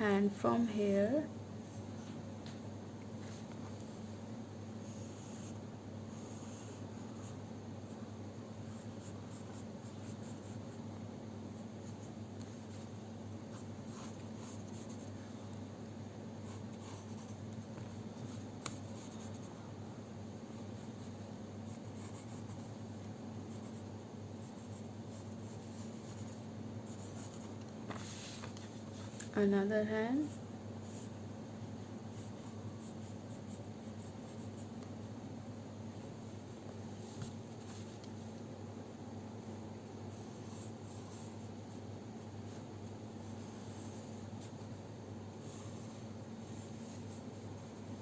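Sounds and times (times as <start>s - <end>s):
steady low hum: 0.0s - 48.0s
pencil scratching on paper: 4.8s - 7.4s, 8.7s - 10.7s, 13.5s - 15.1s, 16.4s - 19.6s, 21.0s - 22.8s, 23.5s - 29.2s, 32.1s - 34.8s, 40.1s - 41.6s, 42.4s - 44.8s, 45.4s - 48.0s.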